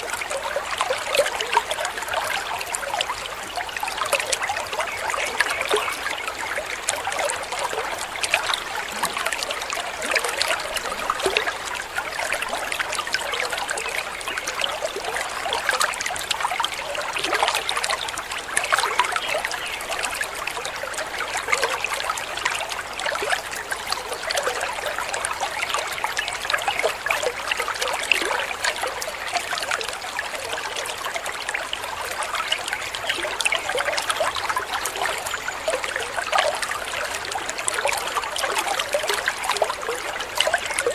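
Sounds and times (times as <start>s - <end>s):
small waterfall splashing: 0.0s - 40.9s.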